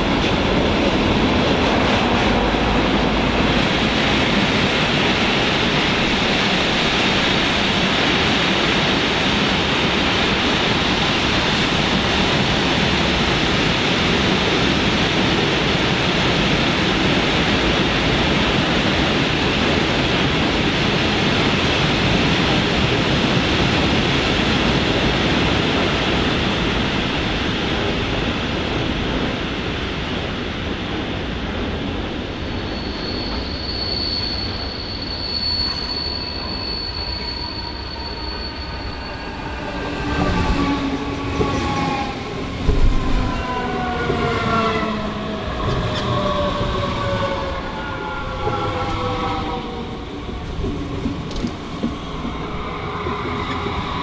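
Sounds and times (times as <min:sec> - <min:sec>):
electric train rolling past: 0:00.0 - 0:54.0
thin high squeal: 0:32.6 - 0:40.3.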